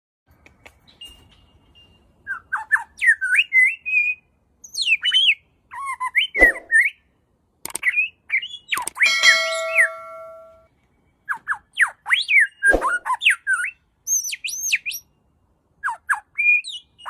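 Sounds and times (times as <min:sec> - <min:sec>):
birds chirping and whistling: 0:00.8 - 0:07.1, 0:07.7 - 0:10.5, 0:11.2 - 0:15.1, 0:15.8 - 0:17.0.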